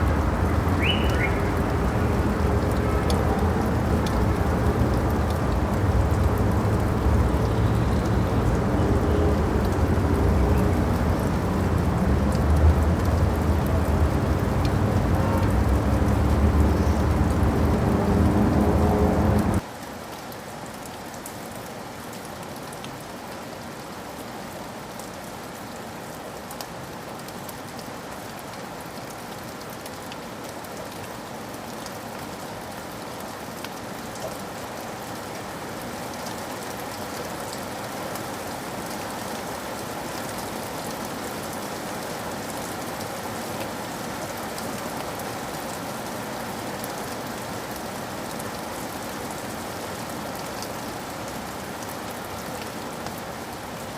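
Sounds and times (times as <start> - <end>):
loud low rumble: 0.0 - 19.6
steady rain falling: 0.0 - 53.9.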